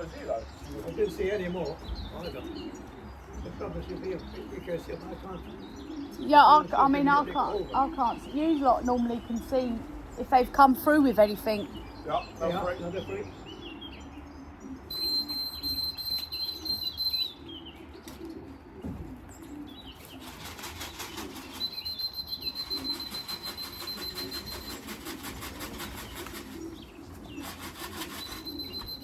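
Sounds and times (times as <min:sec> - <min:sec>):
pigeons cooing: 0:00.0 - 0:29.0
pigeon wings flapping: 0:20.0 - 0:29.0.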